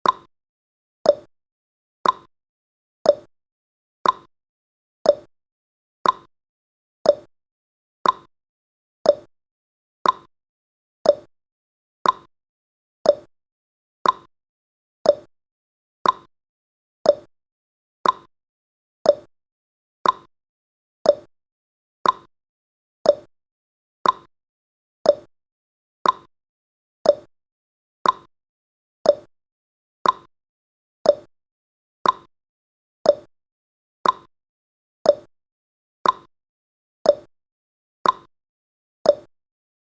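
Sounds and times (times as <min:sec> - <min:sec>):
timer ticking clicks: 0:00.0 - 0:00.3, 0:01.0 - 0:01.3, 0:02.0 - 0:02.3, 0:03.0 - 0:03.3, 0:04.0 - 0:04.3, 0:05.0 - 0:05.3, 0:06.0 - 0:06.3, 0:07.0 - 0:07.3, 0:08.0 - 0:08.3, 0:09.0 - 0:09.3, 0:10.0 - 0:10.3, 0:11.0 - 0:11.3, 0:12.0 - 0:12.3, 0:13.0 - 0:13.3, 0:14.0 - 0:14.3, 0:15.0 - 0:15.3, 0:16.0 - 0:16.3, 0:17.0 - 0:17.3, 0:18.0 - 0:18.3, 0:19.0 - 0:19.3, 0:20.0 - 0:20.3, 0:21.0 - 0:21.3, 0:22.0 - 0:22.3, 0:23.0 - 0:23.3, 0:24.0 - 0:24.3, 0:25.0 - 0:25.3, 0:26.0 - 0:26.3, 0:27.0 - 0:27.3, 0:28.0 - 0:28.3, 0:29.0 - 0:29.3, 0:30.0 - 0:30.3, 0:31.0 - 0:31.3, 0:32.0 - 0:32.3, 0:33.0 - 0:33.3, 0:34.0 - 0:34.3, 0:35.0 - 0:35.3, 0:36.0 - 0:36.3, 0:37.0 - 0:37.3, 0:38.0 - 0:38.3, 0:39.0 - 0:39.3.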